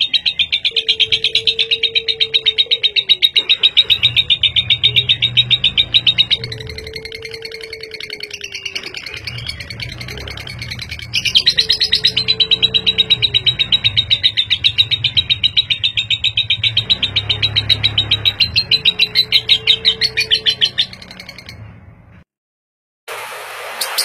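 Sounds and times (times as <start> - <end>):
lovebird chattering chirps: 2.6 - 21.6.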